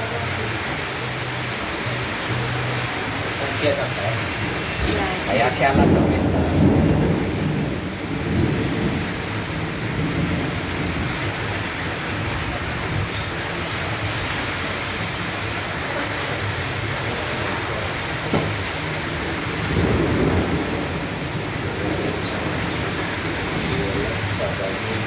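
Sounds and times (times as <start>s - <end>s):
heavy rain downpour: 0.0s - 25.0s
low thunder rumbling: 4.2s - 25.0s
sharp knock: 18.3s - 18.6s.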